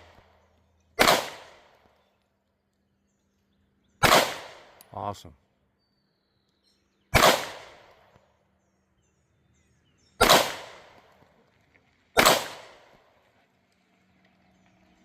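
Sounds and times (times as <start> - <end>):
pistol shots with echo: 1.0 - 1.8, 4.0 - 4.8, 7.1 - 8.1, 10.2 - 11.1, 12.2 - 12.9.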